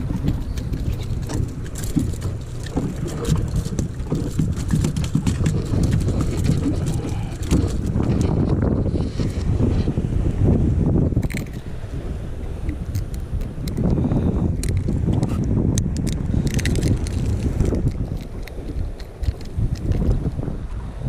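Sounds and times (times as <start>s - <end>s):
wind buffeting the microphone: 0.0s - 21.0s
small knocks and clicks: 14.6s - 20.2s.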